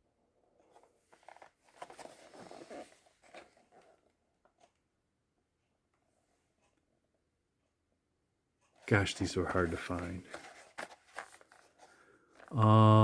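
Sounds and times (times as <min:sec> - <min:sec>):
rustling of packaged toys: 0:08.9 - 0:12.8.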